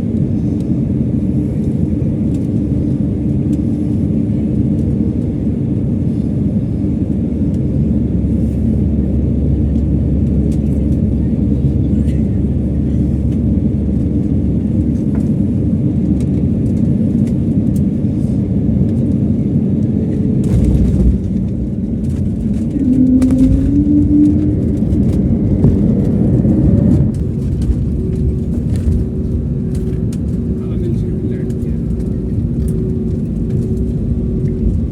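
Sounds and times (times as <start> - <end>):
jet cabin low rumble: 0.0 - 34.9
jet engine tone rising: 19.3 - 30.6.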